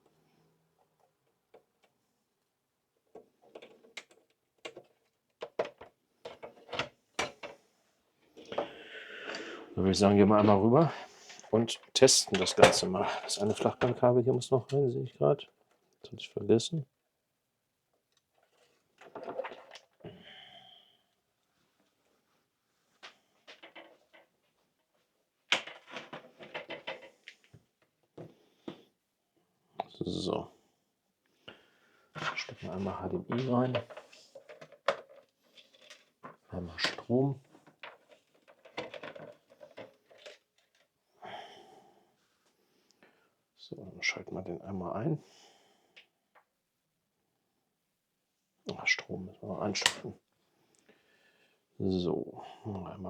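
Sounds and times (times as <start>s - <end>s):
console parts clicking and knocking: 3.0s - 7.6s, 11.8s - 14.8s, 23.4s - 24.4s, 25.5s - 28.4s, 32.2s - 40.8s, 49.7s - 50.1s.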